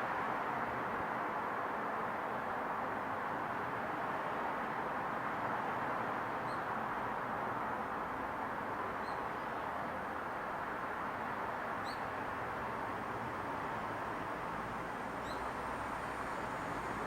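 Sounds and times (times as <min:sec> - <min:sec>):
distant neighbourhood noise: 0:00.0 - 0:17.0
small bird chirps: 0:11.8 - 0:12.0, 0:15.2 - 0:15.5.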